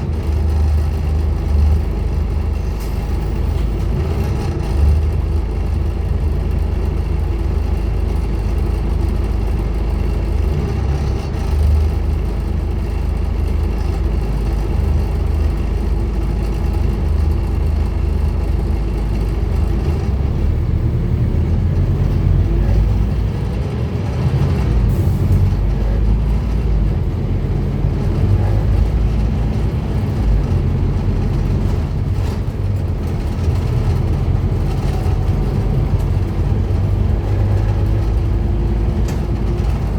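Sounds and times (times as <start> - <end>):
bus diesel engine droning: 0.0 - 39.9
road noise: 0.0 - 39.9.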